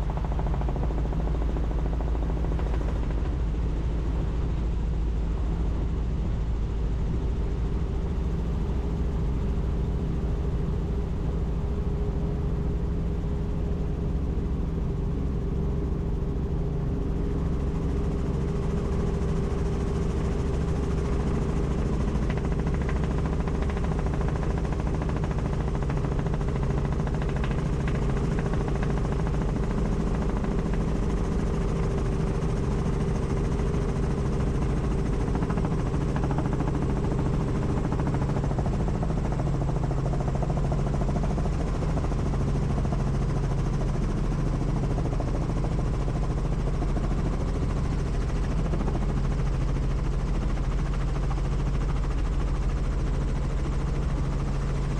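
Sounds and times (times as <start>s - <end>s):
helicopter rotor and engine: 0.0s - 54.9s.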